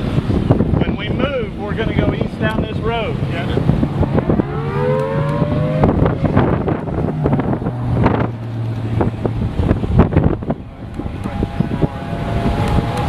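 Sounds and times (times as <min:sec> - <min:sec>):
wind buffeting microphone: 0:00.0 - 0:13.0
rising siren tone: 0:03.7 - 0:08.8, 0:10.4 - 0:13.0.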